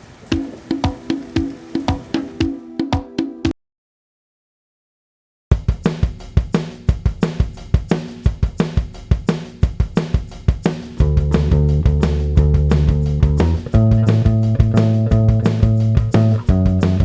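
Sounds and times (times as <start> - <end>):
drum kit rock beat: 0.0 - 3.5, 5.5 - 17.0
bass guitar: 11.0 - 17.0
guitar: 13.2 - 17.0.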